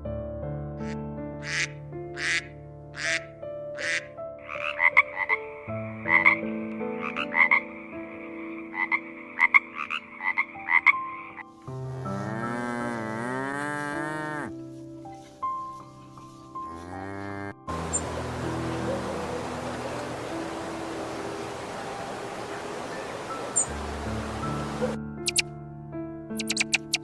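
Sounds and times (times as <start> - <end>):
frog croaking: 3.8 - 6.4, 7.0 - 14.5, 16.7 - 20.0, 23.4 - 23.8, 26.4 - 27.0
cow mooing: 11.8 - 14.5, 16.7 - 18.0.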